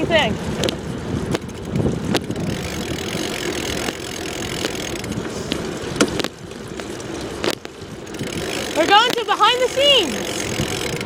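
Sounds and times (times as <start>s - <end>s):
bicycle frame rattle: 0.0s - 11.0s
bicycle tyres rumbling on pavement: 0.0s - 11.0s.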